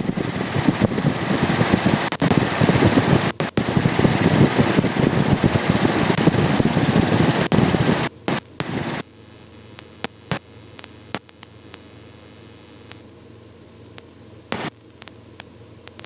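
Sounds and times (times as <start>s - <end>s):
helicopter rotor and wind noise: 0.0s - 9.0s.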